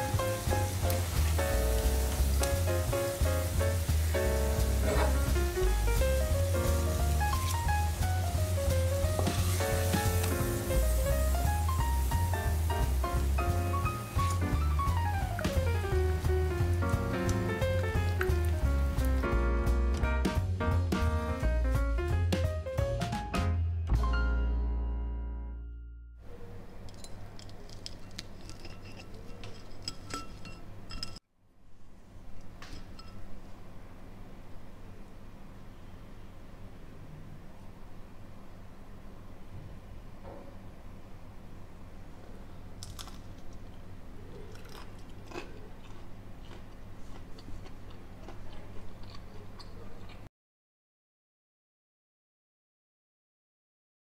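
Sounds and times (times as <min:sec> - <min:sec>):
cutlery clinking on plate: 0:26.9 - 0:31.2, 0:32.6 - 0:33.3
person chewing crunchy food: 0:42.8 - 0:50.3.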